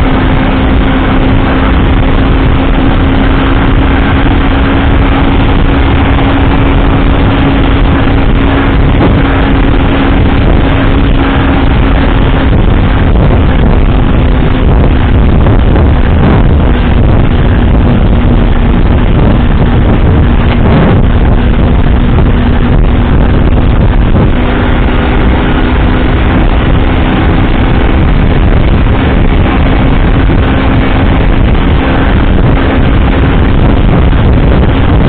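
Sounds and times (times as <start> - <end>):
engine and road rumble: 0.0 - 35.0
engine hum: 0.0 - 35.0.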